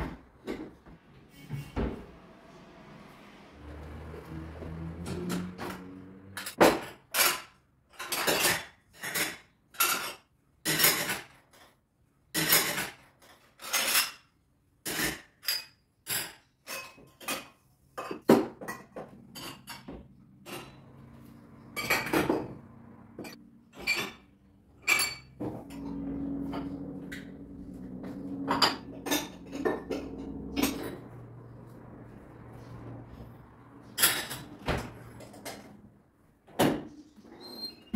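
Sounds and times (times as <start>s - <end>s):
dishes and cutlery clinking: 5.0s - 14.3s, 14.9s - 31.4s, 33.9s - 35.8s.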